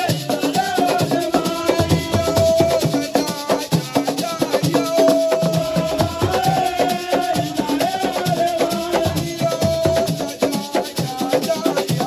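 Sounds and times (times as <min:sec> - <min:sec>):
drum rhythm: 0:00.0 - 0:12.0
shakers: 0:00.0 - 0:12.0.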